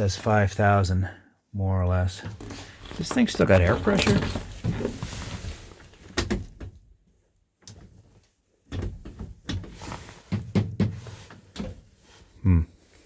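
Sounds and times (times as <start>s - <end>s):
knocks and thumps of handling: 2.2s - 12.0s.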